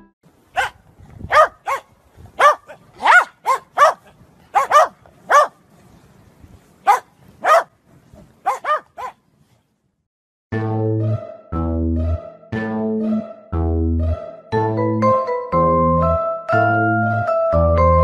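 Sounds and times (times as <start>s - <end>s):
dog barking: 0.5s - 5.6s, 6.8s - 7.7s, 8.4s - 9.2s.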